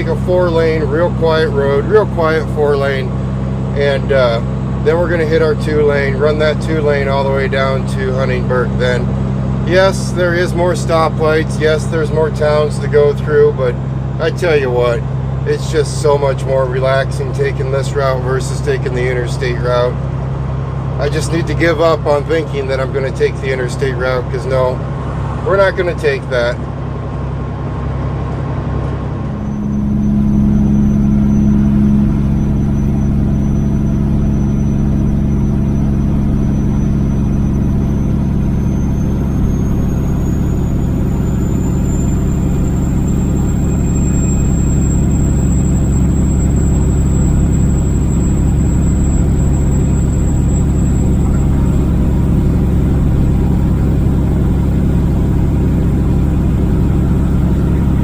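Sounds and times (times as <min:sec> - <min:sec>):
truck diesel engine driving: 0:00.0 - 0:58.0
thin high whine: 0:29.1 - 0:58.0.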